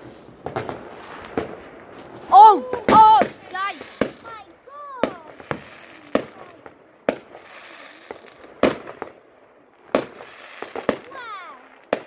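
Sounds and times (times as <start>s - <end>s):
steady noisy hiss: 0.0s - 12.0s
firework shells banging: 0.4s - 9.2s.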